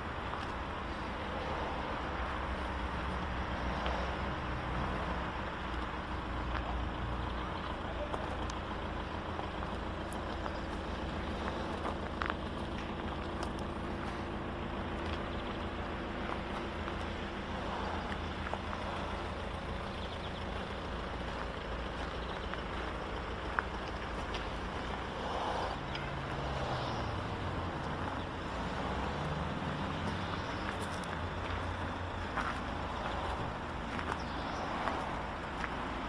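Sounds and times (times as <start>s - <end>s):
diesel engine humming: 0.0s - 36.0s.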